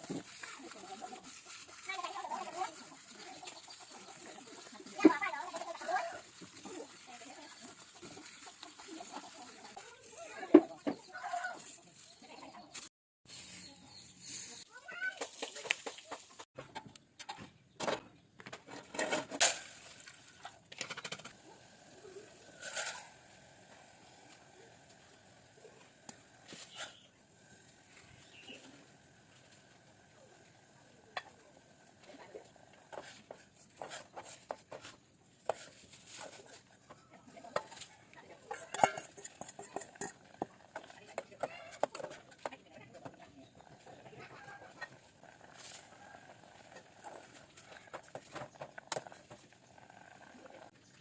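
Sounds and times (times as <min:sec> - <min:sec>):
utensils clattering: 0:37.6 - 0:42.5
utensils clicking and tapping: 0:37.6 - 0:43.2.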